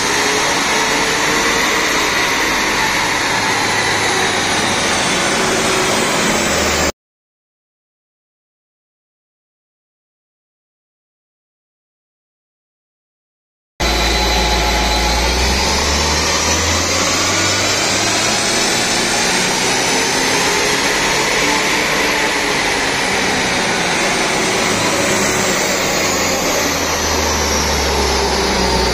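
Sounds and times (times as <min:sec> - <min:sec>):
high whine: 0:00.0 - 0:06.9, 0:13.8 - 0:28.9
diesel engine on a dyno: 0:00.0 - 0:07.0, 0:13.8 - 0:28.9.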